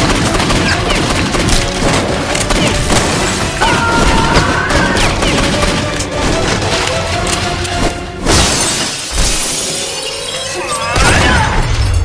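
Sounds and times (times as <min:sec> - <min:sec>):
rapid gunfire: 0:00.0 - 0:06.9
action music: 0:00.0 - 0:12.0.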